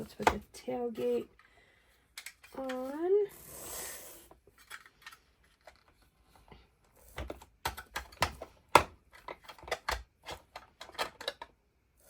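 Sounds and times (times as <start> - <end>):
plastic toy clicks and taps: 0.1 - 0.5, 2.2 - 2.9, 7.2 - 11.5.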